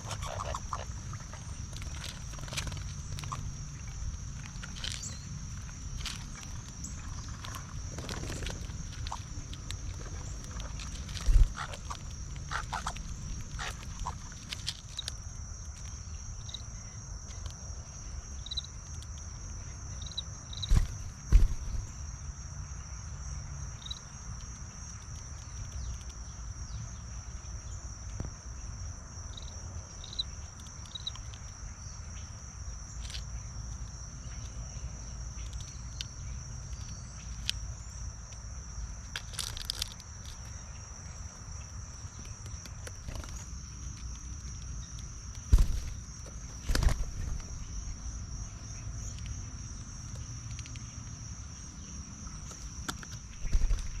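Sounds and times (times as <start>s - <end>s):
insect chorus: 0.0s - 54.0s
loud thumps: 20.7s - 22.0s.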